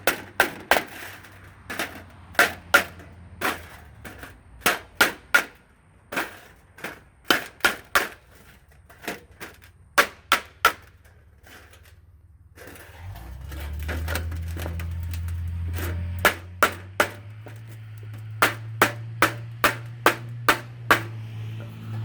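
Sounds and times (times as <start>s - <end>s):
hammer on sheet metal: 18.3s - 21.8s.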